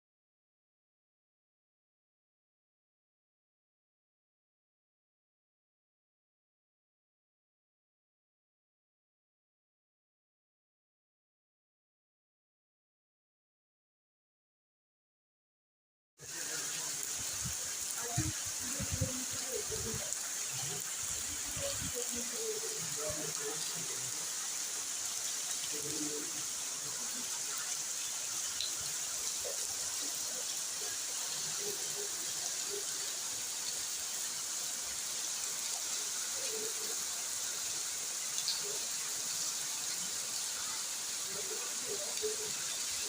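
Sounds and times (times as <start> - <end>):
rain falling: 16.2 - 43.0.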